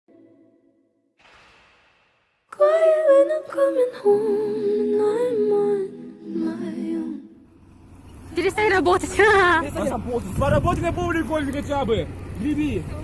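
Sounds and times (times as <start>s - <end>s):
person singing wordless melody: 2.5s - 7.5s.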